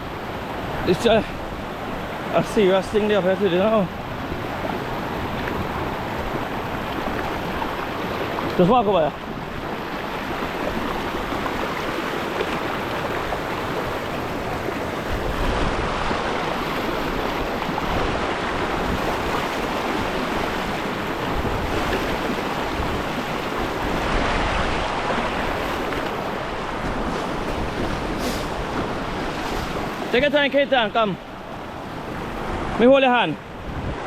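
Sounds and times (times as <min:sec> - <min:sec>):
river water rushing: 0:00.0 - 0:34.0
wind buffeting microphone: 0:09.2 - 0:30.2, 0:33.5 - 0:34.0.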